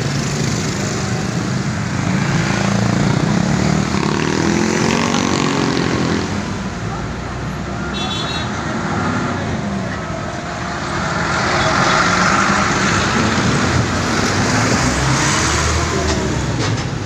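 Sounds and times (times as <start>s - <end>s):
vehicle engines: 0.0s - 17.0s
vehicle passing: 8.5s - 17.0s.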